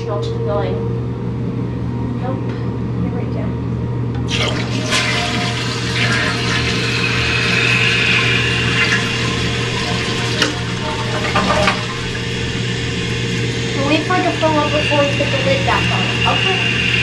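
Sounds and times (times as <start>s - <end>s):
toilet flushing: 4.2s - 17.0s.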